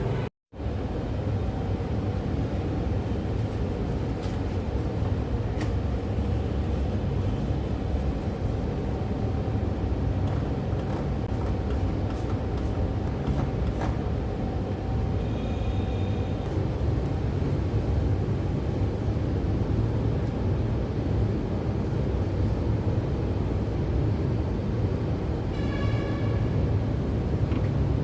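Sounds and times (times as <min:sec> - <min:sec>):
faint constant whine: 0:00.0 - 0:28.0
light-rail train rumble: 0:00.0 - 0:28.0.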